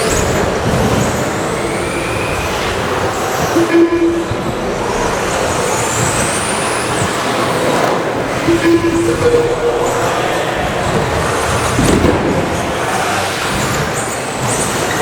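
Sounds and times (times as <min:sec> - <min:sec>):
rc truck motors whining: 0:00.0 - 0:15.0
steady rush of noise: 0:00.0 - 0:15.0
low beep: 0:03.6 - 0:05.2, 0:08.5 - 0:10.4.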